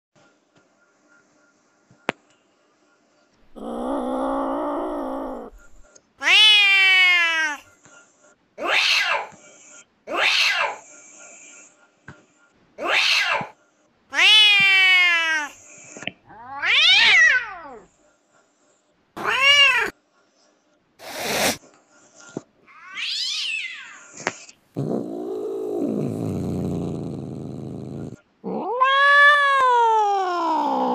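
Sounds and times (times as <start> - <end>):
cat meowing: 3.5 - 7.6, 16.3 - 17.8, 28.5 - 30.9.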